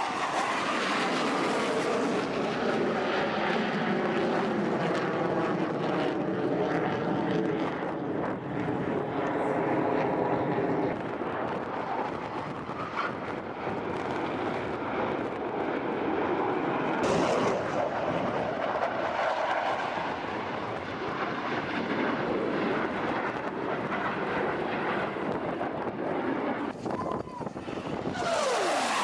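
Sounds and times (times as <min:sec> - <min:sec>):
aircraft engine rushing: 0:00.0 - 0:29.0.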